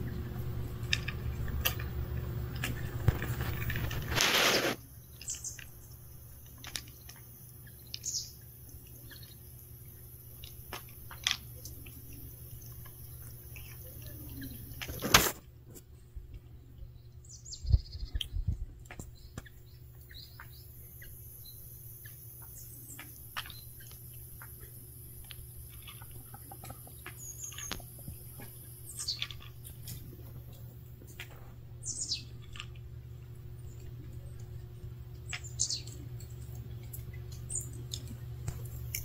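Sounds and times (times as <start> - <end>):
small birds chirping: 0.0 - 15.1, 16.0 - 39.0
steady low hum: 0.0 - 39.0
cat crunching dry kibble: 0.2 - 4.8, 23.4 - 31.4, 32.3 - 35.3.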